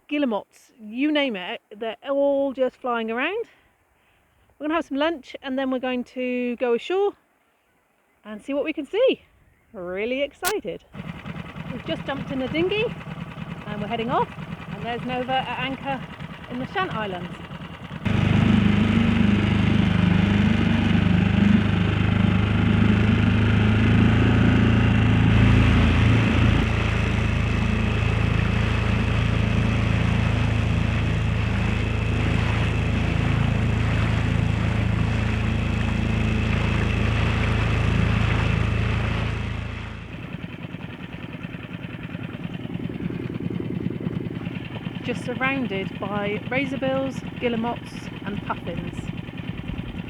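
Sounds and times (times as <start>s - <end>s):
outboard motor running: 10.4s - 50.0s.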